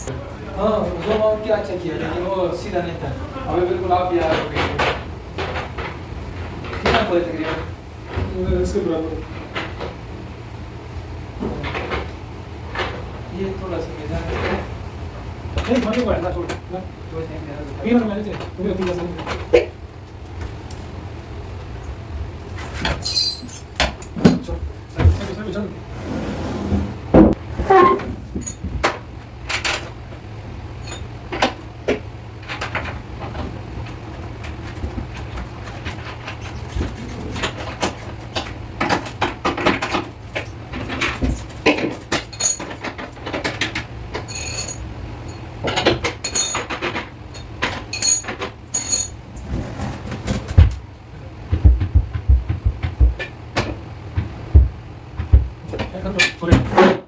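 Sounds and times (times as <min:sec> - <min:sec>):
steady low hum: 0:00.0 - 0:56.7
knocks and taps of installation work: 0:31.3 - 0:44.3, 0:50.2 - 0:50.8, 0:51.4 - 0:57.0.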